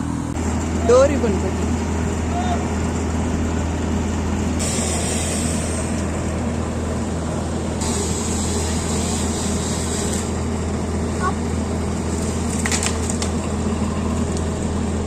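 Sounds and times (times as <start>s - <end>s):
machine running with low hum: 5.9s - 15.0s
high hiss of wood grinding: 7.8s - 10.3s.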